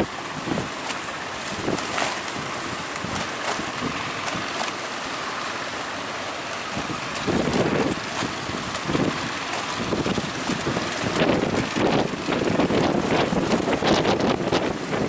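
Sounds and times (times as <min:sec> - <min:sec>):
sea waves washing: 0:00.0 - 0:15.0
wind buffeting microphone: 0:01.4 - 0:04.6, 0:06.7 - 0:15.0.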